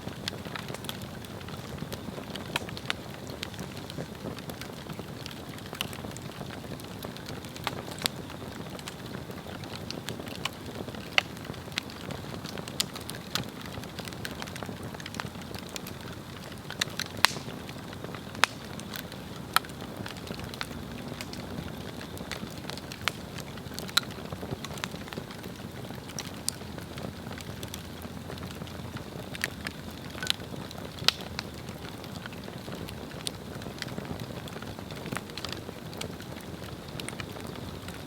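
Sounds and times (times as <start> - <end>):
fire crackling and popping: 0.0 - 38.0
log fire rushing flame: 0.0 - 38.0.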